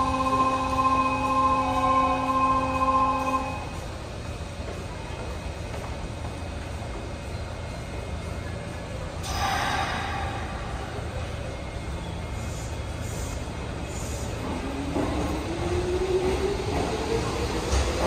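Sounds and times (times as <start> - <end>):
electric train rumbling: 0.0 - 18.0.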